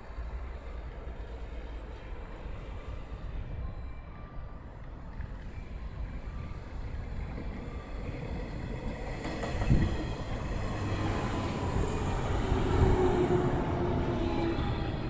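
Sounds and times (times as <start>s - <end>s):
steady train whine: 0.0s - 15.0s
train wheels rumbling: 4.8s - 15.0s.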